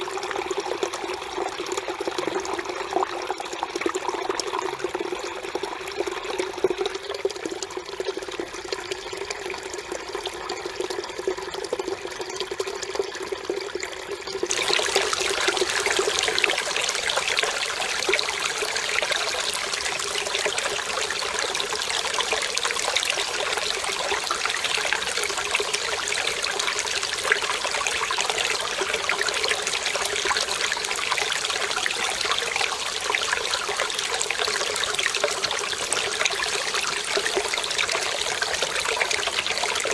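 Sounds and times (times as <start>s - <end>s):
stream water running over rocks: 14.3s - 39.9s.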